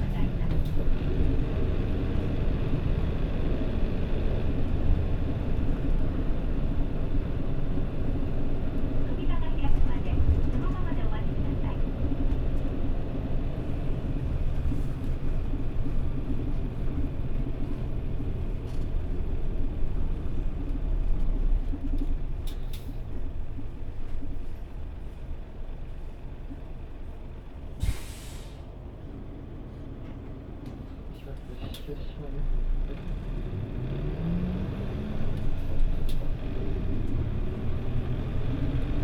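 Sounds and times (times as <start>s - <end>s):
bus engine and road rumble: 0.0s - 39.0s
air brake hiss: 27.8s - 28.7s.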